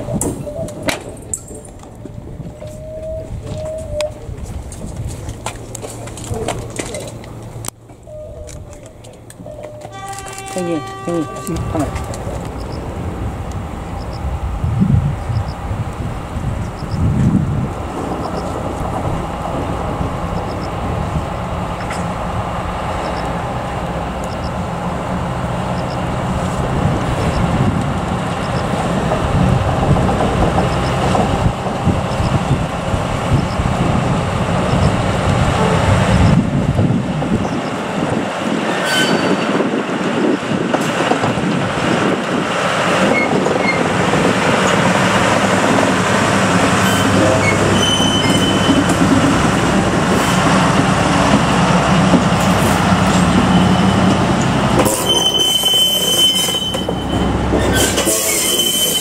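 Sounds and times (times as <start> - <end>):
locomotive hauling train cars: 0.0 - 59.0
rail vehicles moving slowly: 0.0 - 59.0
engine drone: 5.6 - 37.9
train wheels squealing: 38.7 - 39.6, 43.1 - 43.8, 46.8 - 49.0, 53.4 - 54.2, 54.9 - 59.0.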